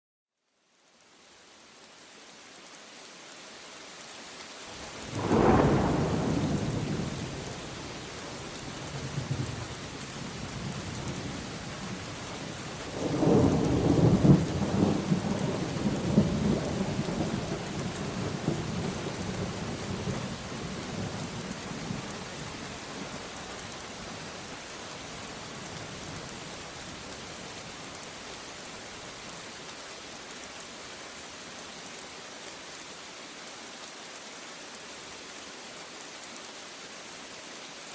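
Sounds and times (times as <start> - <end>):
steady rain falling: 0.4 - 37.9
rolling thunder rumble: 5.1 - 7.8.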